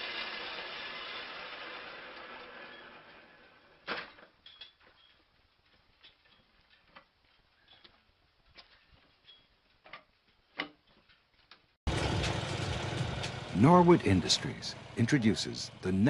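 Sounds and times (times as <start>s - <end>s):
machine sawing noise: 11.9s - 16.0s.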